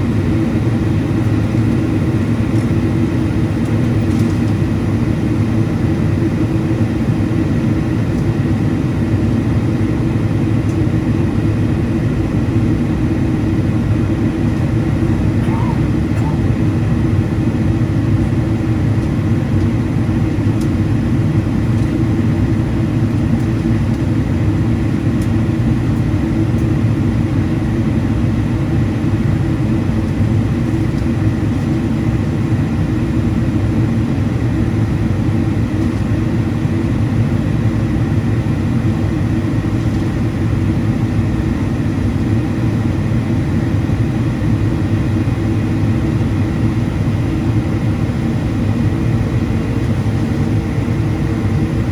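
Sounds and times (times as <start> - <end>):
jet engines humming: 10.9 - 25.3.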